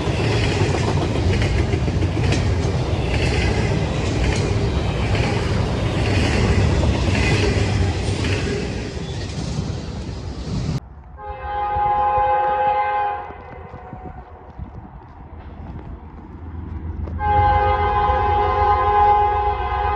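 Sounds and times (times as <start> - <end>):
train wheels rumbling on rails: 0.0 - 19.9
train horn chord: 11.2 - 13.8, 17.2 - 19.9.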